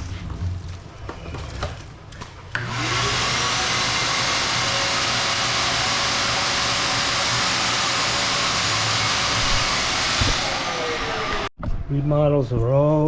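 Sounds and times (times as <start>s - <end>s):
vacuum motor whining: 2.5s - 11.5s.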